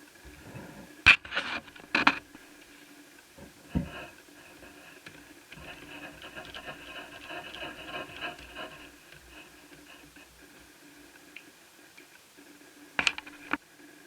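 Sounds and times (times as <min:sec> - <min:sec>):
light scratching on plastic: 0:00.2 - 0:11.5.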